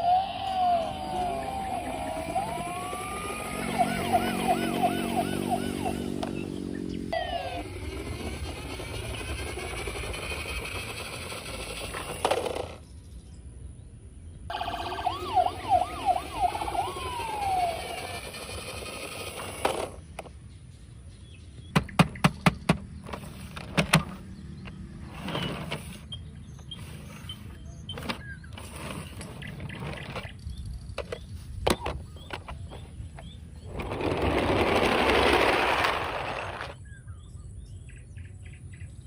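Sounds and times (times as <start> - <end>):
electronic siren wails: 0.0 - 10.6, 14.5 - 19.7.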